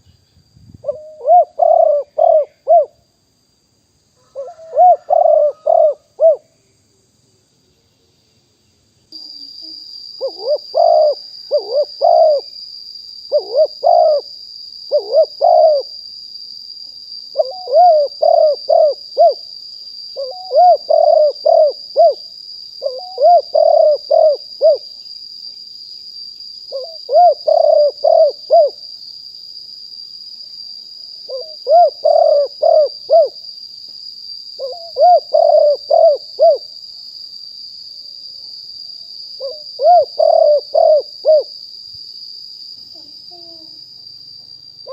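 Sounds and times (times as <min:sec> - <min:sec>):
dove cooing: 0:00.8 - 0:03.0, 0:04.2 - 0:06.5, 0:10.2 - 0:12.5, 0:13.3 - 0:14.3, 0:14.9 - 0:15.9, 0:17.3 - 0:19.4, 0:20.2 - 0:22.2, 0:22.8 - 0:24.8, 0:26.7 - 0:28.8, 0:31.3 - 0:33.4, 0:34.6 - 0:36.7, 0:39.4 - 0:41.5, 0:43.0 - 0:43.8.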